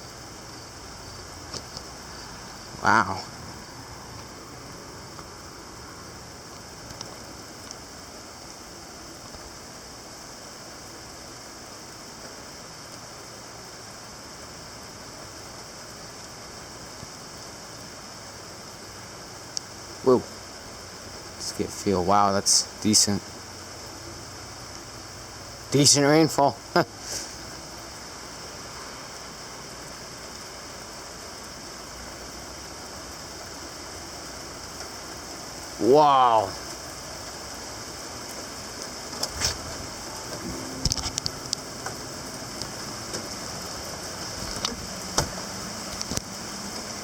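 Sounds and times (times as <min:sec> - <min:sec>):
heavy rain falling: 0:00.0 - 0:47.0
rain drop ticks: 0:06.5 - 0:07.9, 0:19.5 - 0:19.8, 0:33.3 - 0:35.7, 0:36.5 - 0:47.0.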